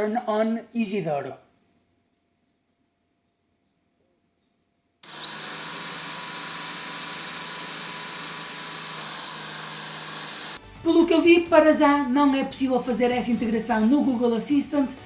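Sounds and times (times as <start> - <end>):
robot vacuum running: 5.0 - 10.6.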